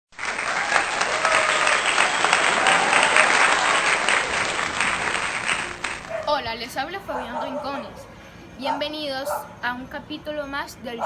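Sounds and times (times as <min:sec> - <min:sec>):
crowd applauding: 0:00.1 - 0:06.3.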